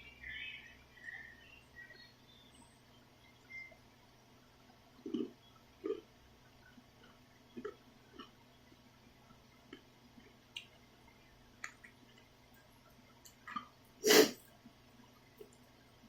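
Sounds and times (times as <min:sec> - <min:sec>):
wet chewing: 0:05.0 - 0:06.0, 0:07.0 - 0:08.4
loud slurp: 0:14.0 - 0:14.4.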